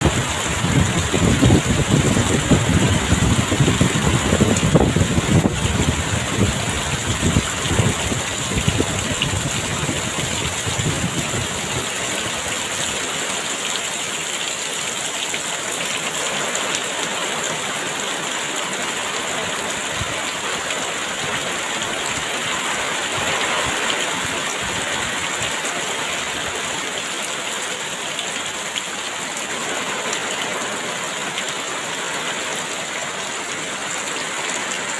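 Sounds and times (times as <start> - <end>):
gusts of wind rumbling: 0.0 - 12.5
heavy rain pouring: 0.0 - 34.9.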